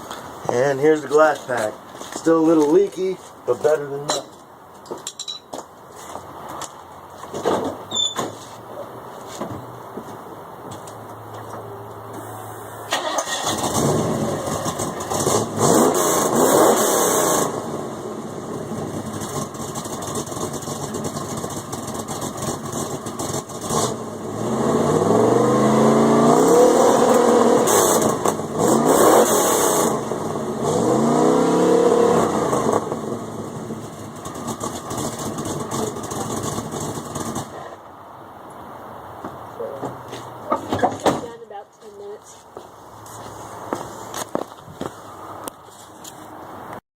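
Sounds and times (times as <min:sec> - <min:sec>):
car engine revving: 0:12.9 - 0:37.7.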